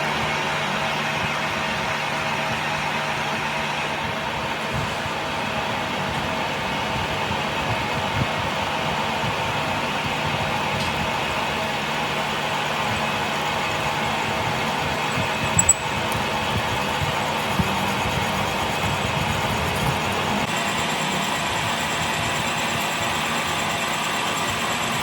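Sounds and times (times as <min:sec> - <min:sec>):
sharp clicks: 0:15.1 - 0:16.3.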